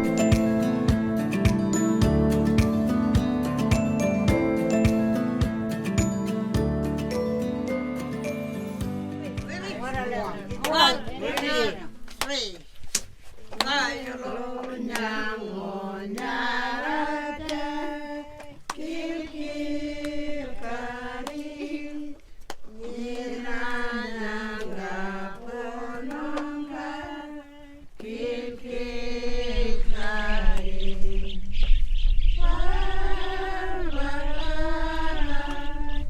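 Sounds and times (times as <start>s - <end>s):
voices singing a chant: 9.7s - 12.0s, 13.6s - 31.5s, 32.4s - 36.0s.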